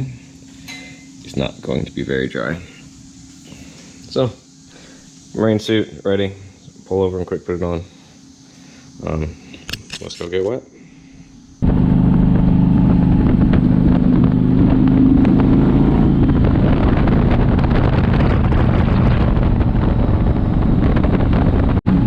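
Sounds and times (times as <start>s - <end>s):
motorcycle engine running: 11.6s - 22.0s
wind rushing over microphone: 11.6s - 22.0s.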